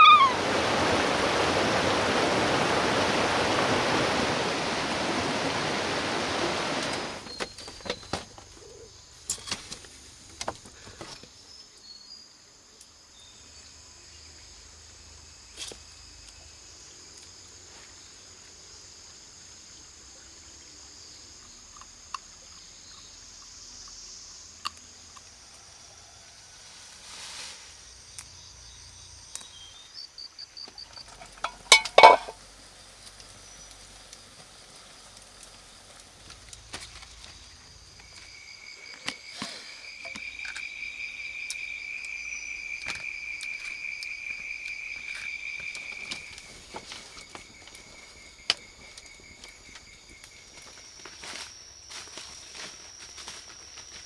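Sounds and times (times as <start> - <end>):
insects chirring: 0.0 - 54.0
steady insect buzz: 0.0 - 54.0
pulsed insect trill: 36.0 - 54.0.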